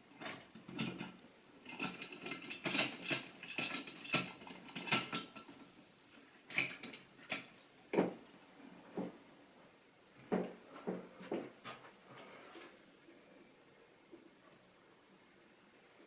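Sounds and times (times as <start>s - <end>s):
model train clicking and rattling: 0.2s - 5.8s.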